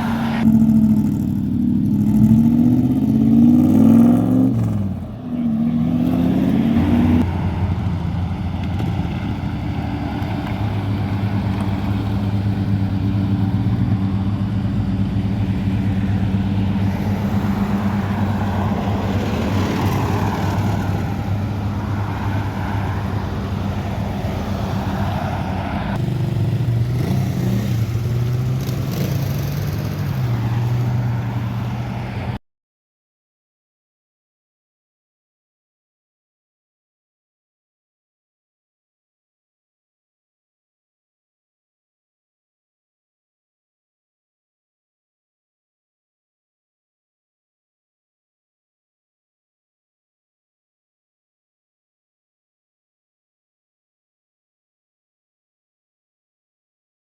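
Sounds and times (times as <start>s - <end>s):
car engine revving: 0.0s - 31.6s.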